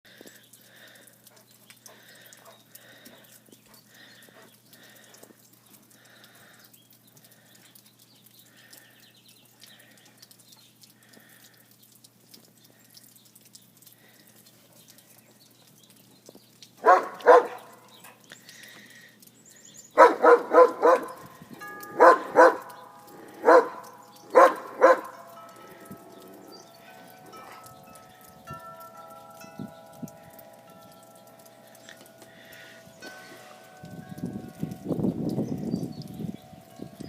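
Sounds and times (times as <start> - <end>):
dog barking: 16.8 - 17.8, 20.0 - 21.2, 22.0 - 22.7, 23.4 - 25.1.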